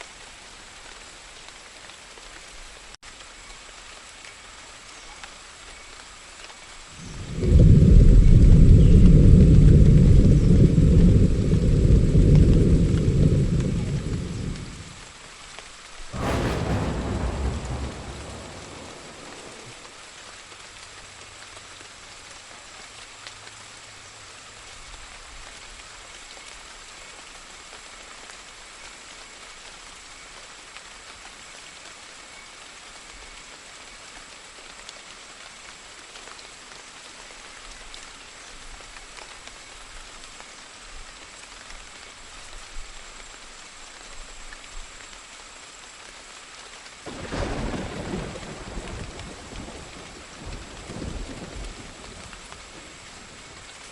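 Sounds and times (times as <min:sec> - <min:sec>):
steady rain falling: 0:00.0 - 0:53.9
thunder rumbling: 0:06.9 - 0:15.1, 0:16.1 - 0:20.2, 0:47.1 - 0:53.9
sharp thunderclap: 0:07.0 - 0:15.0, 0:16.1 - 0:20.0, 0:47.1 - 0:53.4.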